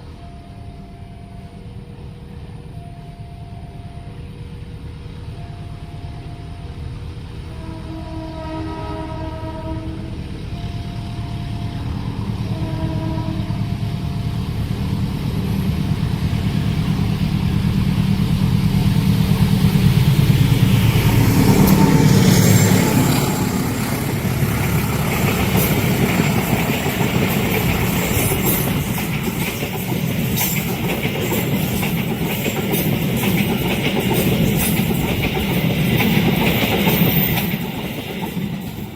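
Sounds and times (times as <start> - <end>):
diesel locomotive rumble: 0.0 - 38.9
train horn: 7.4 - 14.2
wheels clicking over rail joints: 21.6 - 38.9.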